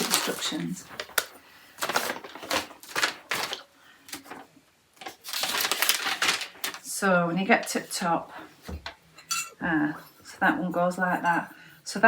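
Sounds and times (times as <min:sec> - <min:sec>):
rustling: 0:00.0 - 0:06.9.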